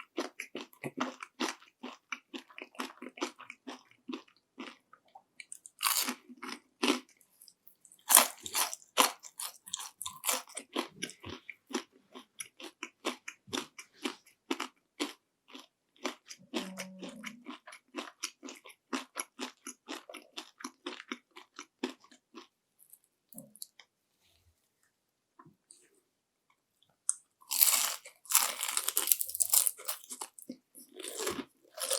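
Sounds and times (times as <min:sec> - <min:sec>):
crunchy bites and chewing: 0:05.4 - 0:22.5, 0:27.4 - 0:31.9.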